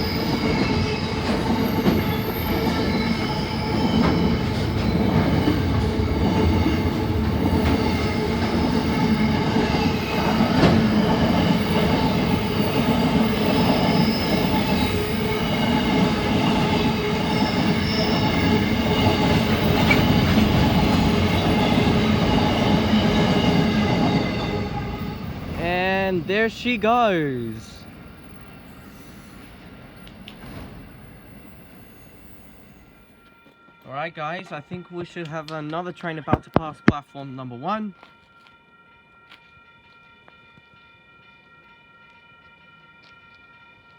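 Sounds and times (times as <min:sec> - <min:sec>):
high-pitched wheel squeal: 0:00.0 - 0:25.8
train wagons rumbling past: 0:00.0 - 0:33.2.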